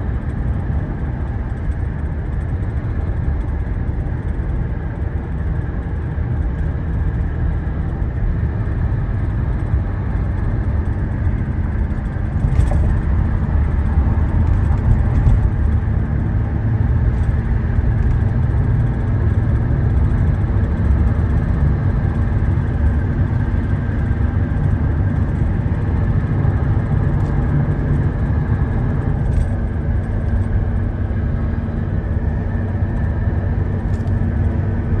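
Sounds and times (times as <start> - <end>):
car engine and tyre rumble: 0.0 - 35.0.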